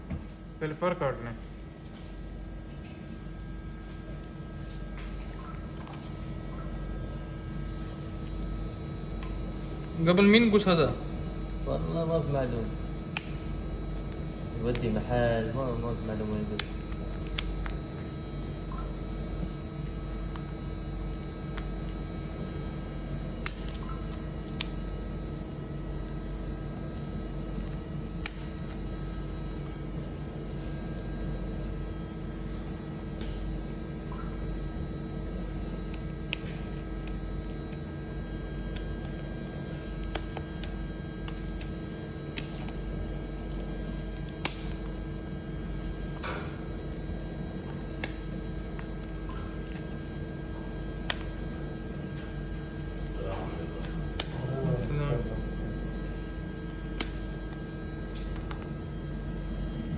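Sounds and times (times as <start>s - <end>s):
room hum: 0.0s - 59.9s
scissors snipping feathers: 11.9s - 13.5s, 14.6s - 15.4s, 16.0s - 17.9s, 23.4s - 25.0s, 26.8s - 28.8s, 35.7s - 42.8s, 43.4s - 45.0s, 47.5s - 49.9s, 53.0s - 54.5s, 56.6s - 58.6s.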